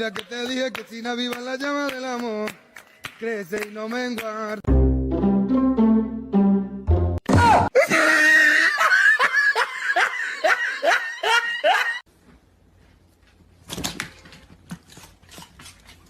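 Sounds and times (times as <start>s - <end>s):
background music: 4.7s - 7.7s
person laughing hard: 7.7s - 12.0s.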